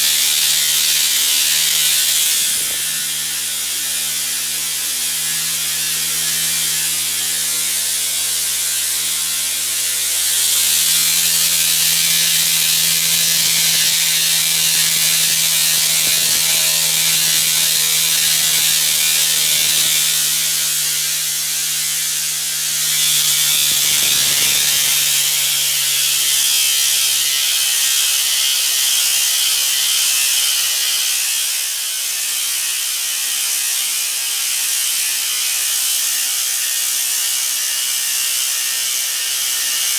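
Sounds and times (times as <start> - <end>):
steam hissing: 0.0 - 3.6, 7.6 - 31.0.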